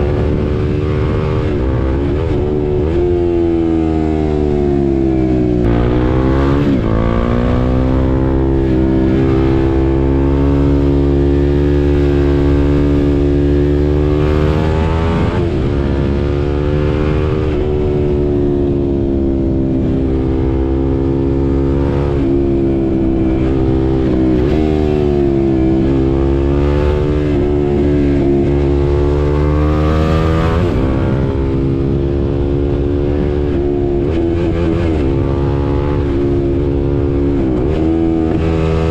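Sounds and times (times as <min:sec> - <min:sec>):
motorcycle engine accelerating and shifting: 0:00.0 - 0:38.9
wind noise: 0:00.0 - 0:38.9.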